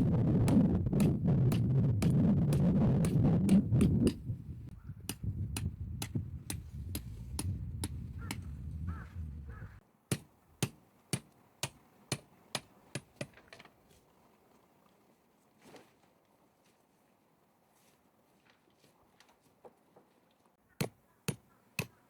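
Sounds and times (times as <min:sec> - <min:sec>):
sharp knocks: 0:00.0 - 0:04.3.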